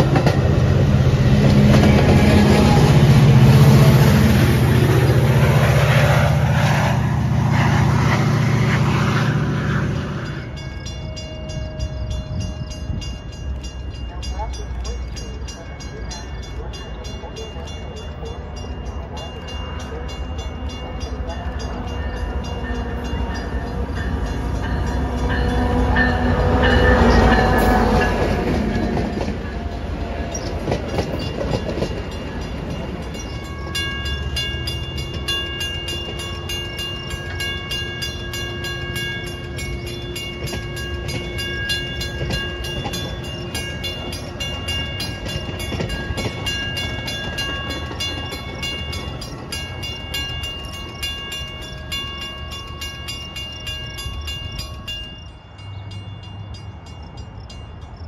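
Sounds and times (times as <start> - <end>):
train rail rumble: 0.0 - 58.0
high ringing tones: 29.2 - 58.0.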